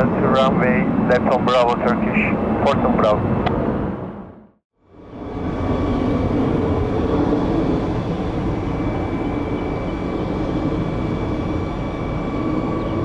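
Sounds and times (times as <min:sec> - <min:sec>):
jet engines rushing: 0:00.0 - 0:13.0
thin steady whine: 0:04.8 - 0:13.0.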